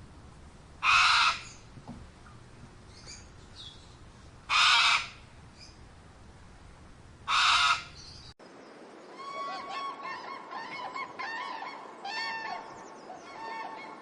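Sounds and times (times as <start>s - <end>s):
flock of birds calling: 9.1s - 14.0s.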